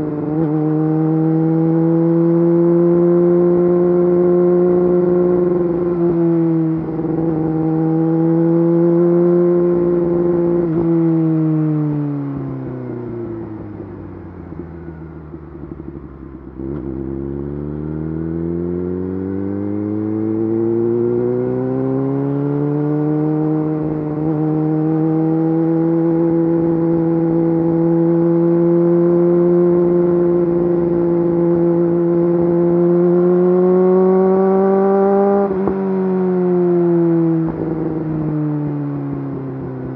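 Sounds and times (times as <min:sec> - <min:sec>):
sport bike engine revving: 0:15.8 - 0:35.8.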